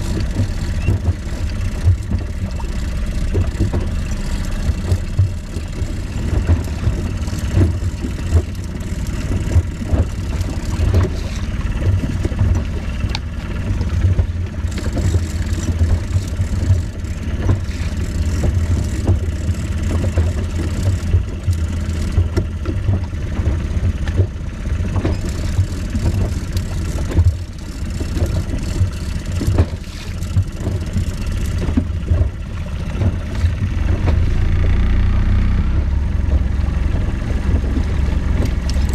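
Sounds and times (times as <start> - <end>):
boat engine low rumble: 0.0 - 38.9.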